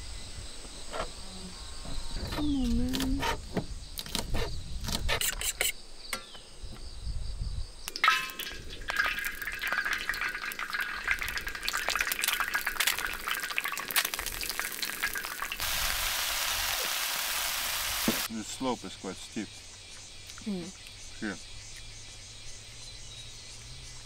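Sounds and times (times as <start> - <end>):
food sizzling in oil: 7.9 - 18.3.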